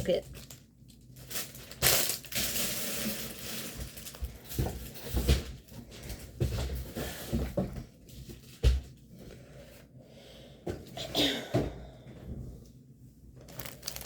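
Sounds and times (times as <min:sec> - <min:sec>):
plastic packaging crinkling: 0:00.0 - 0:05.0, 0:13.4 - 0:14.0.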